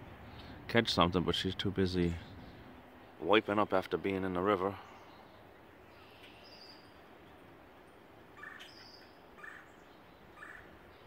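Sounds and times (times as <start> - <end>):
faint bird calls: 4.7 - 7.4, 8.3 - 11.0.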